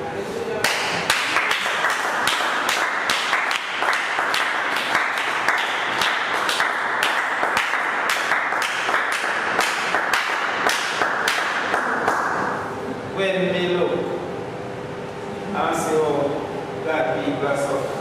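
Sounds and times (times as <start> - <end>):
congregation clapping in rhythm: 0.6 - 12.6.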